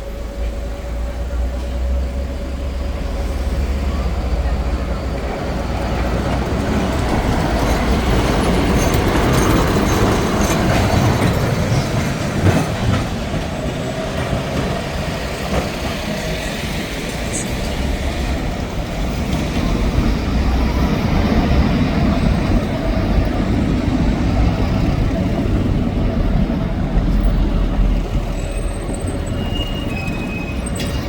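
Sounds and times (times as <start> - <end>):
tram running on rails: 0.0 - 31.0.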